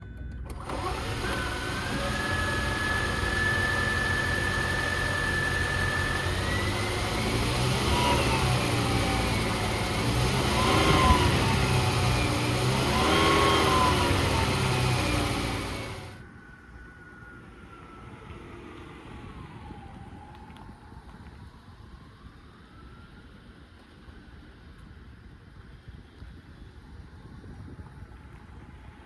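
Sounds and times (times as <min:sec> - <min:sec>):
steady high whine: 0:00.0 - 0:19.3
car engine revving: 0:00.5 - 0:16.2.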